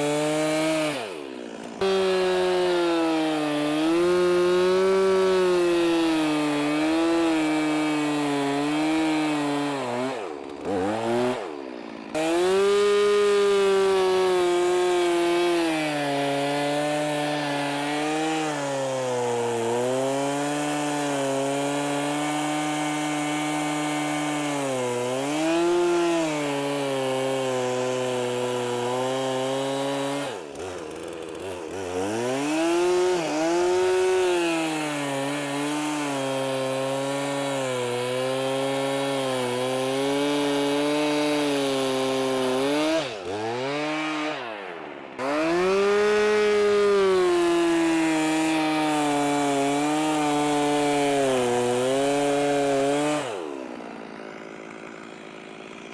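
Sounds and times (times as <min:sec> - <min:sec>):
chainsaw cutting ice: 0:00.0 - 0:55.9.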